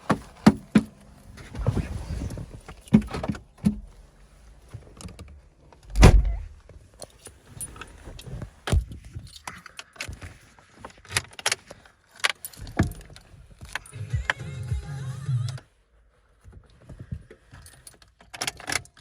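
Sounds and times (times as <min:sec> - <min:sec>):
handling clicks and rattles: 0:00.0 - 0:14.4, 0:16.4 - 0:19.0
loud thump: 0:05.9 - 0:06.6.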